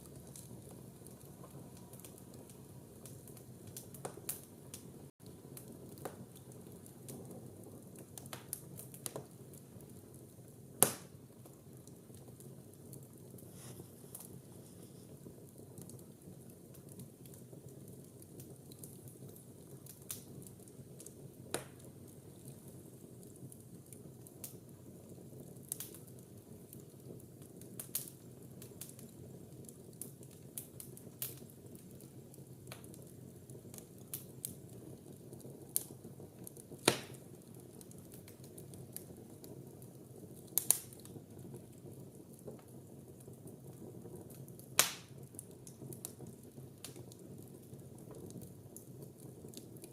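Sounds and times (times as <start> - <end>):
fire flames rushing: 0.0 - 33.0
fire crackling and popping: 0.0 - 49.9
wood fire loud snaps: 0.1 - 7.4, 8.0 - 9.4, 10.8 - 12.0, 13.4 - 14.4, 16.8 - 22.6, 25.6 - 26.1, 27.6 - 29.1, 30.0 - 32.0, 33.7 - 34.6, 35.8 - 39.8, 40.4 - 41.2, 44.3 - 47.2.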